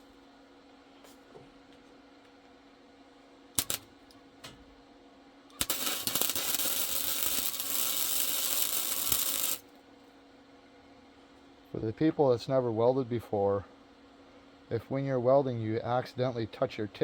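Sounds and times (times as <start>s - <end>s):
faint steady hum: 0.0s - 17.0s
welder arc crackling: 3.6s - 4.2s, 5.5s - 9.7s.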